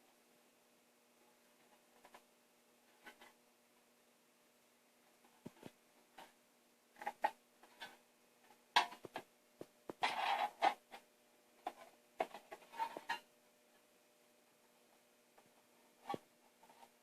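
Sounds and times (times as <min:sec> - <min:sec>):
metal scraping rub: 0:11.7 - 0:13.2.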